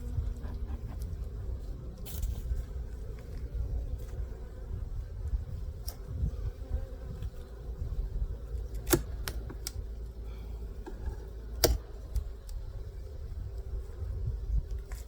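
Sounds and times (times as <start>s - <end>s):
faint steady hum: 0.0s - 15.0s
wooden hive parts clicking and knocking: 8.5s - 9.8s, 10.8s - 12.5s.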